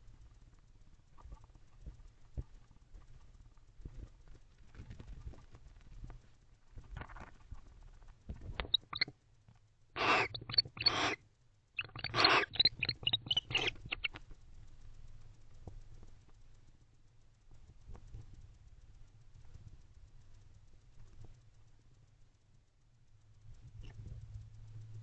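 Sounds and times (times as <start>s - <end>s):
faint low hum: 0.0s - 25.0s
high chittering calls: 8.6s - 9.1s, 10.0s - 11.2s, 11.8s - 14.2s
short clicks: 8.6s - 9.1s, 10.0s - 11.2s, 11.8s - 14.2s
barn owl hissing calls: 8.7s - 9.1s, 10.0s - 11.2s, 11.8s - 14.2s.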